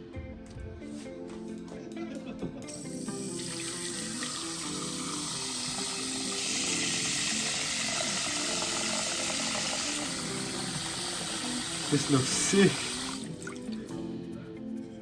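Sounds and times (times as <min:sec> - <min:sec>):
background music: 0:00.0 - 0:15.0
tap running into sink: 0:02.8 - 0:13.6.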